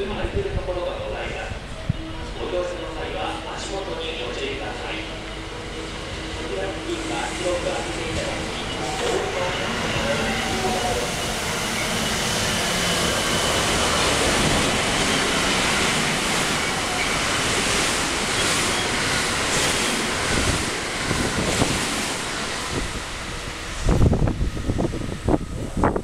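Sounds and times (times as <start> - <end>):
train rushing past: 0.0 - 26.0.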